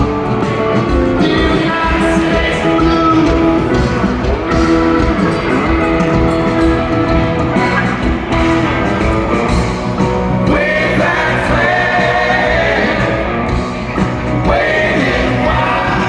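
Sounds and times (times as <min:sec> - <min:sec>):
live rock band playing: 0:00.0 - 0:16.0
person singing: 0:01.1 - 0:06.1, 0:10.4 - 0:16.0.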